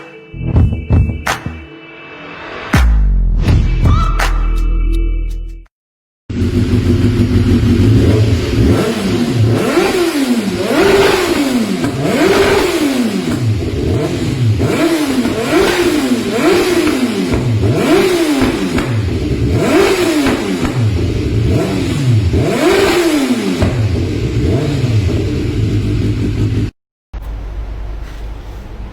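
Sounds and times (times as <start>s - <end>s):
motorcycle engine revving: 6.3s - 26.8s.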